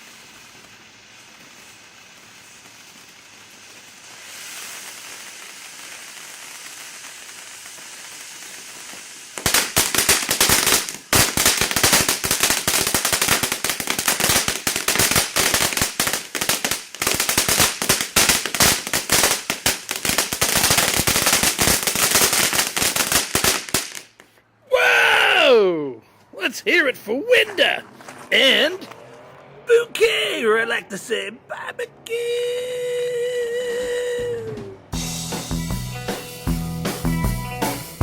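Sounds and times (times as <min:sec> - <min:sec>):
fountain firework hissing: 0:00.0 - 0:24.2.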